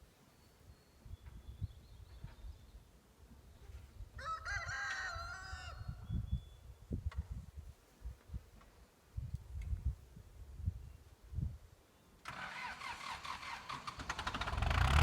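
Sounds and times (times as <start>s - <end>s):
rooster crowing: 4.2s - 5.9s.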